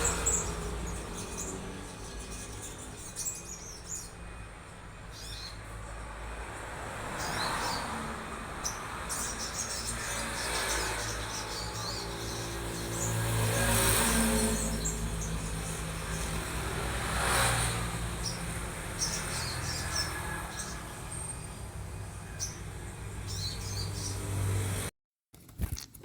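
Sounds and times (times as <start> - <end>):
songbirds chirping: 0.0 - 24.8
low traffic rumble: 0.0 - 24.9.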